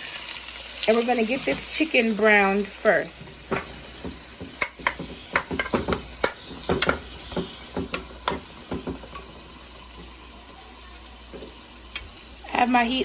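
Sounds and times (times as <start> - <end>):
chicken sizzling in hot oil: 0.0 - 13.0
clicks and knocks against pot: 3.5 - 9.4.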